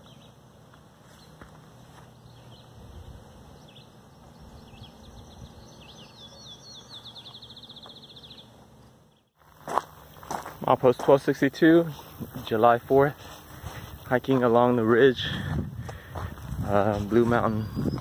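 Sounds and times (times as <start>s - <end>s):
songbird trilling: 3.6s - 8.5s, 17.3s - 18.0s.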